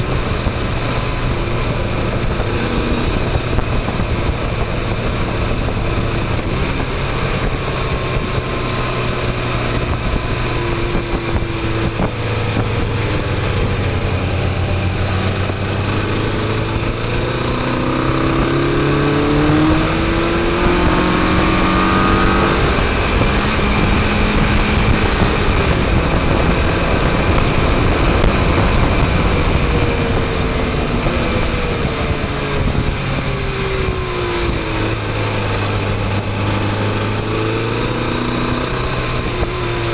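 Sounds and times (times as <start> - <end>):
motorcycle engine revving: 0.0 - 39.9
wind noise: 0.0 - 39.9.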